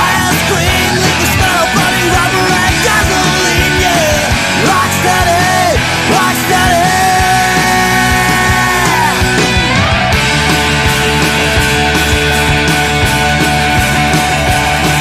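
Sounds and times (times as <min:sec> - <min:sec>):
distorted electric guitar lead: 0:00.0 - 0:15.0
drums and bass: 0:00.0 - 0:15.0.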